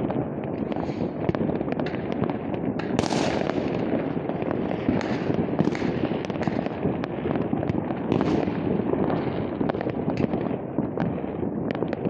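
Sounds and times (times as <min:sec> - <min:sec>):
distant fireworks rumble: 0:00.0 - 0:12.0
firecrackers cracking: 0:00.0 - 0:12.0
loud firework bang: 0:02.8 - 0:04.0.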